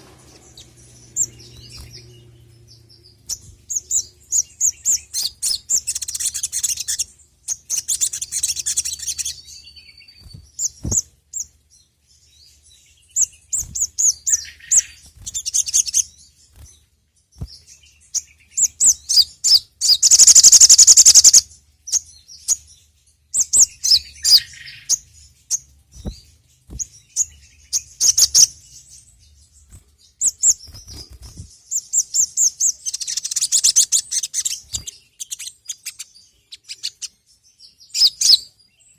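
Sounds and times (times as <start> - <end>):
bird chirping rapidly: 0.0 - 11.5, 12.5 - 16.8, 17.4 - 22.7, 23.3 - 38.9.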